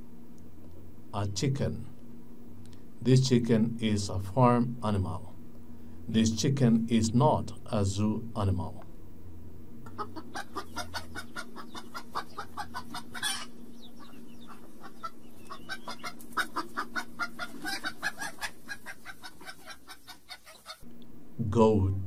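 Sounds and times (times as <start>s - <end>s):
chicken clucking: 9.8s - 20.8s.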